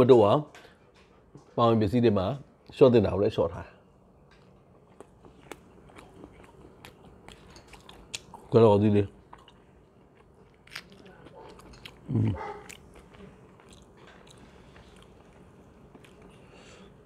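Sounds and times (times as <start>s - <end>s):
person chewing food: 4.3s - 8.6s, 9.2s - 17.0s.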